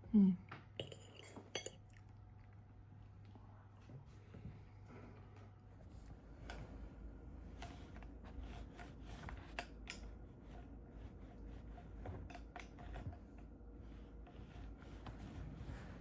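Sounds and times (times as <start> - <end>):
low room hum: 0.0 - 16.0
tableware clicks and taps: 0.8 - 1.8.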